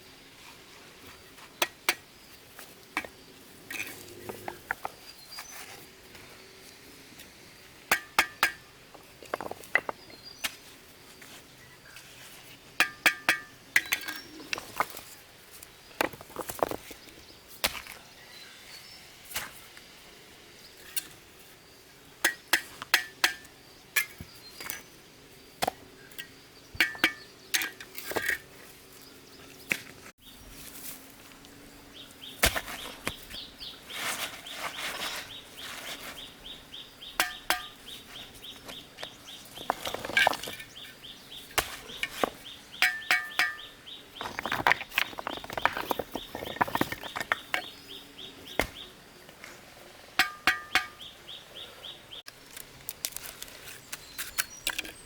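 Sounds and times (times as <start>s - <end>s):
stones clinking and knocking: 7.9s - 10.2s, 16.0s - 18.0s, 38.6s - 40.9s, 41.6s - 48.8s.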